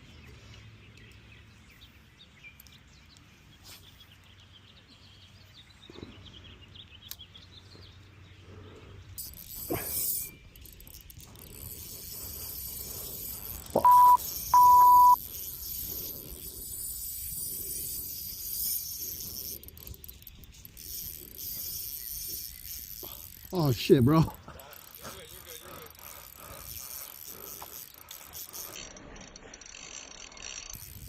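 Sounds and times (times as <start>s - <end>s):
faint outdoor background: 0.0s - 31.0s
electronic censor bleeps: 13.8s - 15.2s.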